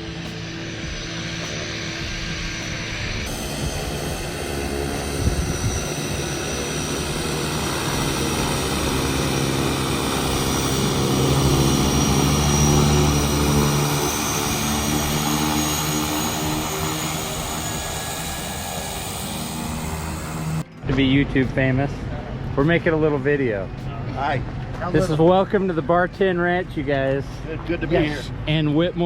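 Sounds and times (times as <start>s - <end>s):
propeller aircraft engines: 0.0s - 20.8s.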